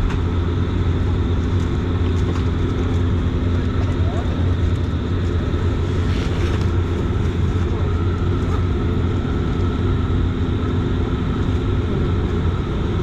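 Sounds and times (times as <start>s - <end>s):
turboprop engines droning: 0.0s - 13.0s.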